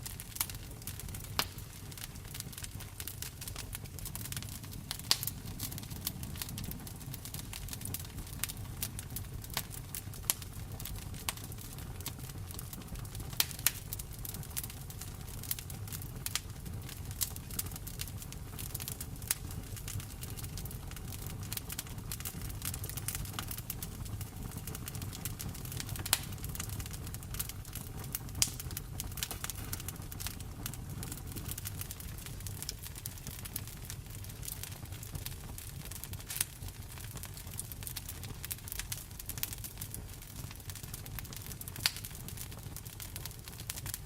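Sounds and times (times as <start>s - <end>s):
wood fire crackling and popping: 0.0s - 44.0s.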